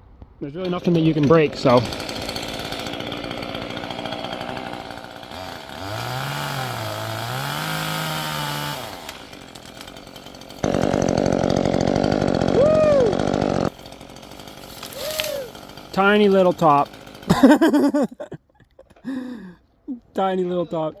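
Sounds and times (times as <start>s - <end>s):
electric chainsaw cutting wood: 0.6s - 18.3s
tree falling rush: 1.8s - 18.0s.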